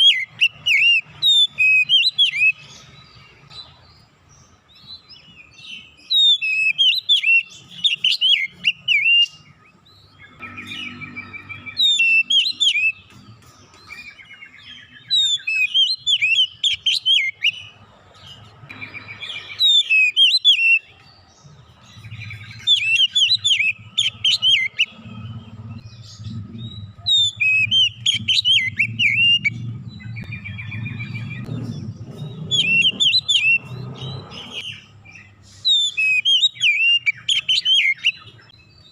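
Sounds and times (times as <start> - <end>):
magpie-robin singing: 0.0 - 38.9
low hum: 23.7 - 34.6.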